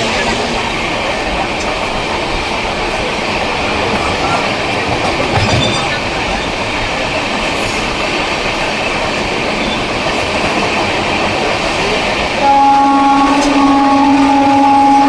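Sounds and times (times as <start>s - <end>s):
train rumbling on rails: 0.0s - 15.0s
locomotive horn blast: 12.4s - 15.0s.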